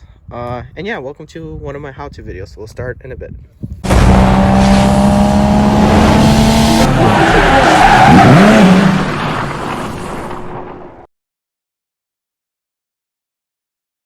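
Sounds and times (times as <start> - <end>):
loud car engine: 3.8 - 11.0
tyre squeal: 6.9 - 10.4.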